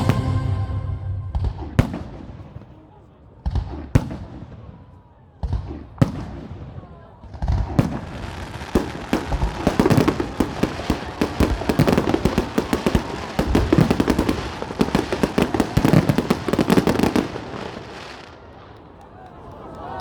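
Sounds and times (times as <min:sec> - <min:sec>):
fireworks bangs and crackles: 0:03.4 - 0:18.7.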